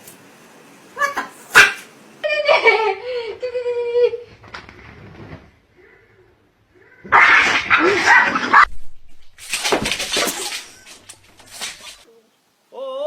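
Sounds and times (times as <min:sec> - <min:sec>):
dog barking roughly: 0:01.0 - 0:01.9, 0:07.1 - 0:08.7.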